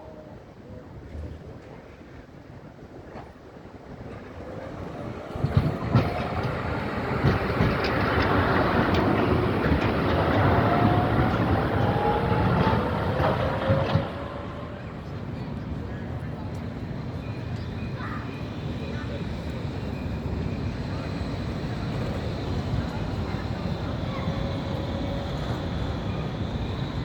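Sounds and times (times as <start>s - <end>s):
tram rumble with rising whine: 0.1s - 27.0s
tram wheels knocking over rail joints: 5.3s - 14.5s.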